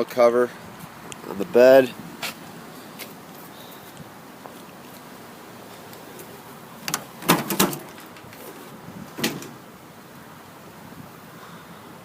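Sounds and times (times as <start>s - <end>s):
truck bed rattling knocks: 6.9s - 8.2s, 9.1s - 9.6s.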